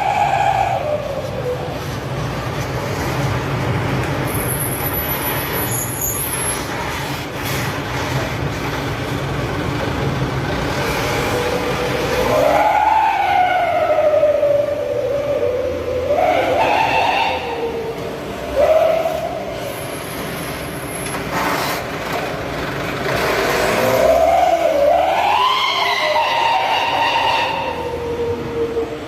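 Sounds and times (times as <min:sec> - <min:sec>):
siren-like wail: 0:00.0 - 0:02.0, 0:11.2 - 0:19.6, 0:23.8 - 0:29.0
vehicle humming: 0:00.0 - 0:29.0.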